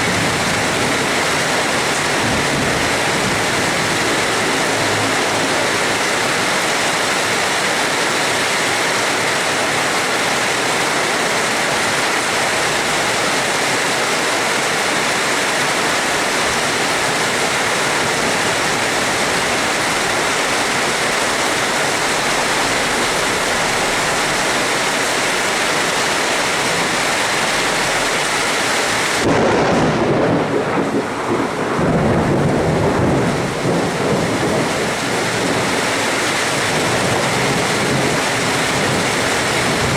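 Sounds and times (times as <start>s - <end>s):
thunder rumbling: 0.0s - 6.5s, 29.1s - 39.9s
heavy rain hissing: 0.0s - 39.9s.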